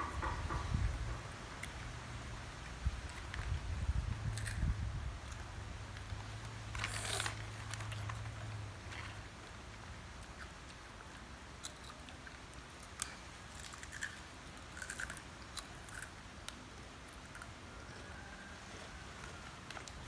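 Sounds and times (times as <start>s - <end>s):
low background hum: 0.0s - 20.0s
people crunching snacks: 3.0s - 5.6s, 6.7s - 20.0s.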